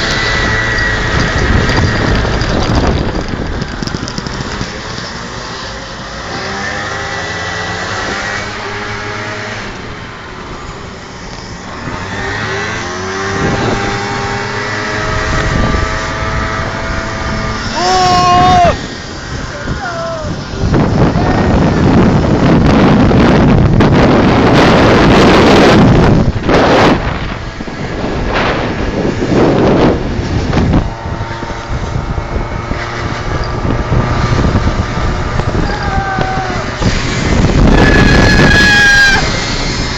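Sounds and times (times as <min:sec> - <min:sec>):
motorcycle engines revving: 0:00.0 - 0:39.9
wind buffeting microphone: 0:00.0 - 0:39.9.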